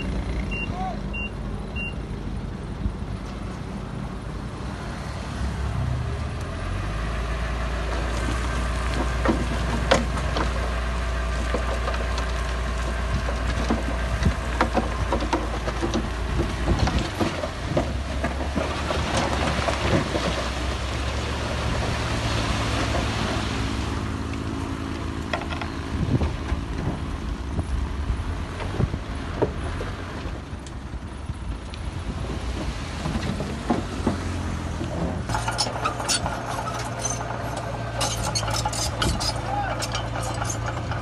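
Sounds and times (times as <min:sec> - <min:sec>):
heavy machinery engine running: 0:00.0 - 0:41.0
rock and metal knocks and thuds: 0:08.8 - 0:10.7, 0:11.4 - 0:20.8, 0:32.2 - 0:41.0.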